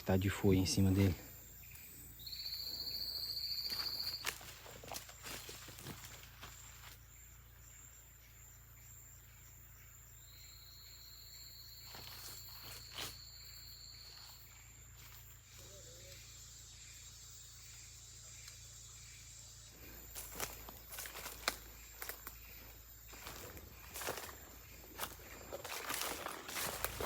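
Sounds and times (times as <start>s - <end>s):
insects buzzing: 0.0s - 27.0s
faint repeated chirps: 1.7s - 4.5s.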